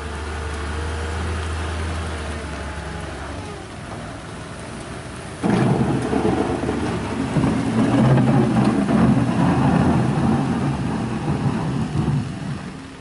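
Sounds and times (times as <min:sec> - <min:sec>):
heavy engine rumbling under load: 0:00.0 - 0:13.0.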